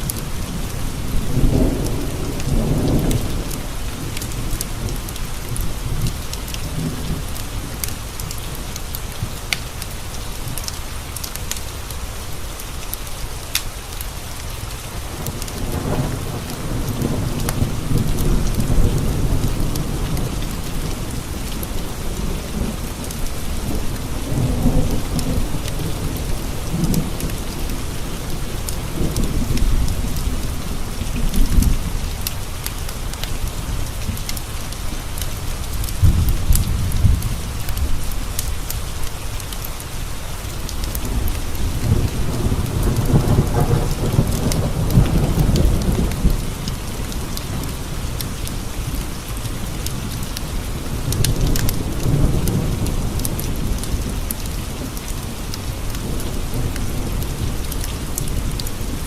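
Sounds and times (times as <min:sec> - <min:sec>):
rain pattering on windows: 0:00.0 - 0:59.0
thunder rumbling: 0:15.3 - 0:32.3, 0:40.6 - 0:59.0.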